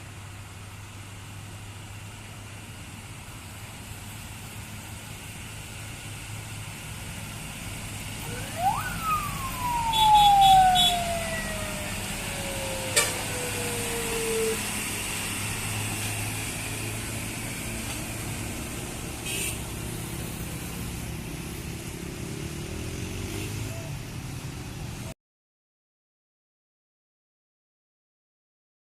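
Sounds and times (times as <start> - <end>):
road traffic hum: 0.0 - 25.1
whistle exhaust wailing: 8.2 - 15.9.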